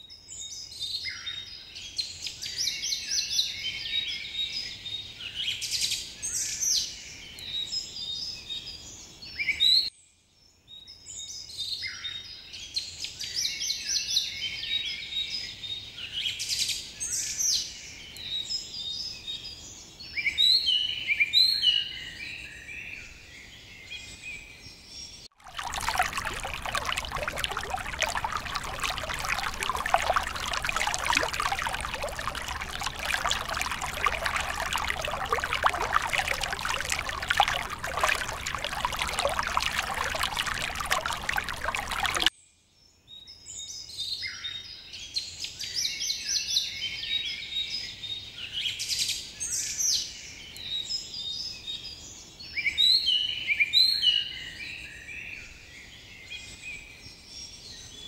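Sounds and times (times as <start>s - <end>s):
underwater bubbling: 25.4s - 42.3s.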